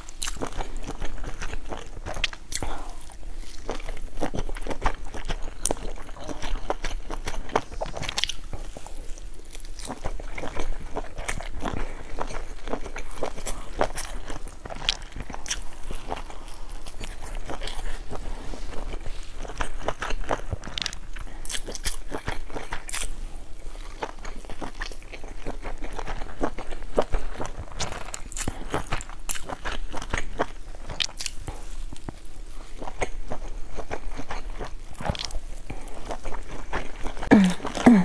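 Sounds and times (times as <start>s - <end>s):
person chewing with mouth clicks: 0.0s - 38.0s.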